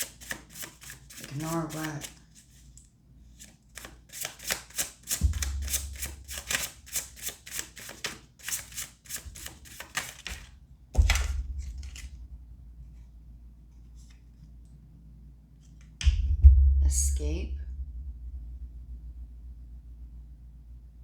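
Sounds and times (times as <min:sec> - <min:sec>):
cards being shuffled: 0:00.0 - 0:02.7, 0:03.3 - 0:12.2.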